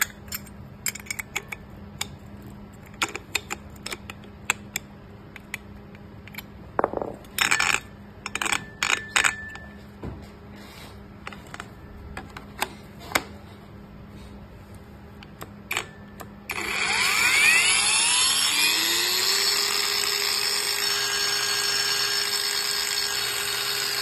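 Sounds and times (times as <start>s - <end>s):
angle grinder whining: 16.5s - 24.0s.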